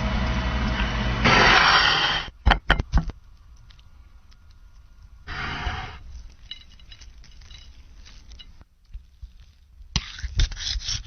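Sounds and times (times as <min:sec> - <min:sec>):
burst of noise: 0:01.2 - 0:02.4, 0:05.3 - 0:06.0.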